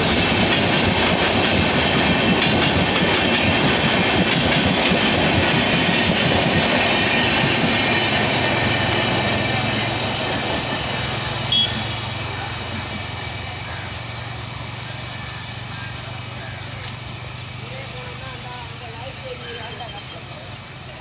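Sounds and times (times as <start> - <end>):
train wheels rushing on rails: 0.0 - 21.0.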